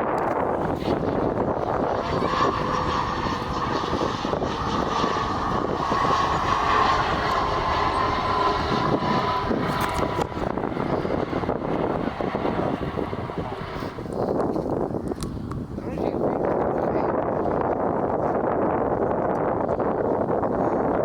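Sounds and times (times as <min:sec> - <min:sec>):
airliner engines whining: 0:00.0 - 0:16.2.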